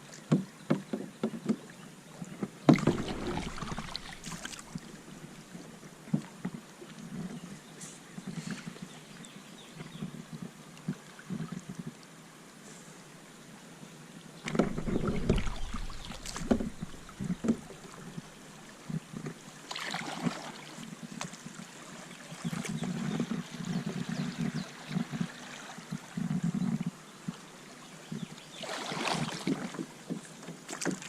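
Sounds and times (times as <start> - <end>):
paddle splashes: 2.6 - 6.5, 14.4 - 26.2, 28.5 - 31.0
sharp knocks: 14.5 - 18.3.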